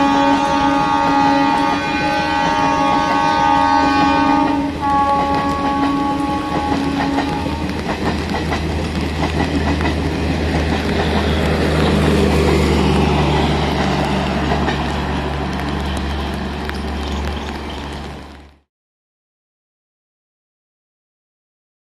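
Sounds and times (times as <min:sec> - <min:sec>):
train wheels clattering: 0:04.4 - 0:18.0.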